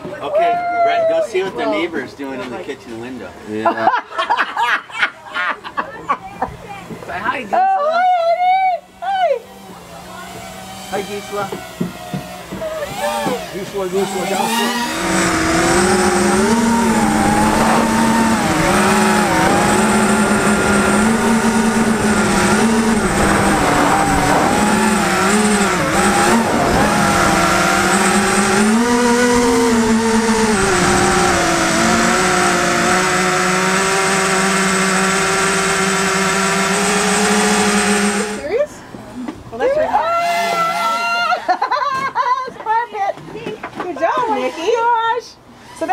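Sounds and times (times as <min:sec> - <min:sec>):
quadcopter motors whining: 0:07.3 - 0:38.8, 0:39.6 - 0:41.6.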